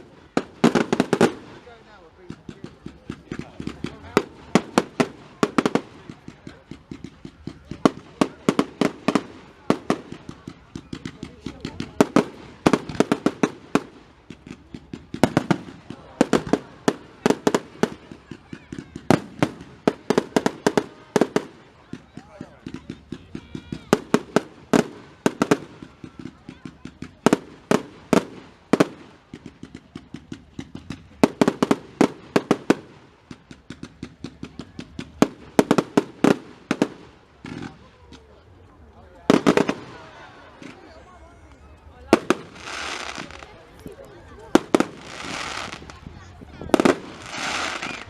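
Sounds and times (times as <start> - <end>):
fireworks bangs and cracks: 0.0 - 48.0.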